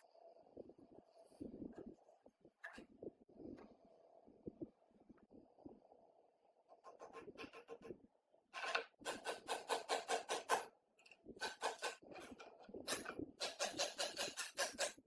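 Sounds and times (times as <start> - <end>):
rasping strokes by hand: 8.6 - 10.7, 11.4 - 15.0.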